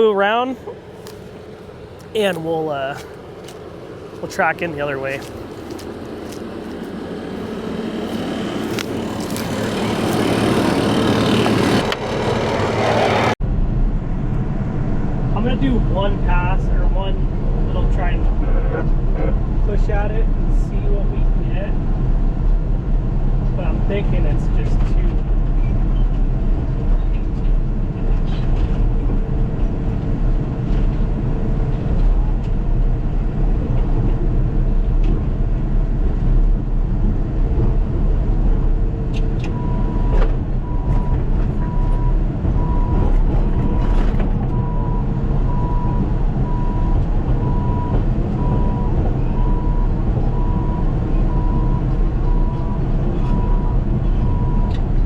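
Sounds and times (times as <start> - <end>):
bulldozer diesel engine running: 0.0 - 13.4, 28.8 - 55.0
high reverse alarm beeps: 44.5 - 54.8.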